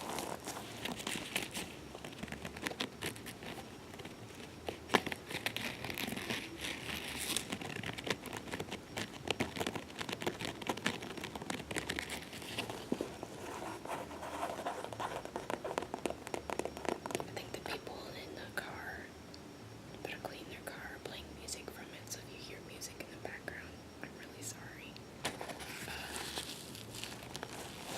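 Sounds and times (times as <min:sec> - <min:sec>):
faux-leather carrier crinkling: 0:00.0 - 0:17.3, 0:25.3 - 0:27.9
taps and scratches: 0:00.0 - 0:17.4.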